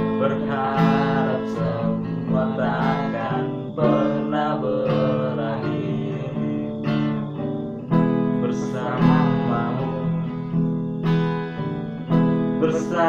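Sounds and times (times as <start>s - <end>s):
person singing: 0.0s - 7.4s, 8.2s - 10.6s, 12.6s - 13.0s
acoustic guitar strumming: 0.0s - 13.0s.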